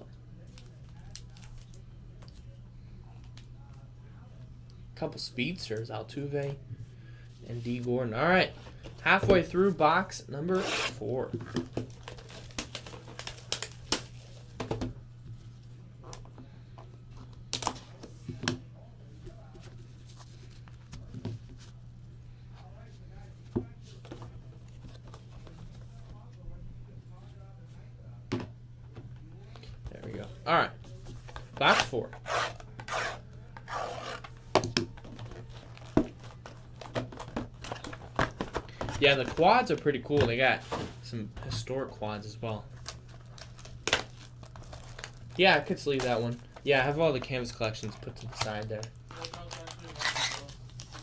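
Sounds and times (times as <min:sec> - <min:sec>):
low electrical hum: 0:00.0 - 0:51.0
cards clicking and rustling: 0:10.5 - 0:14.9, 0:29.2 - 0:51.0.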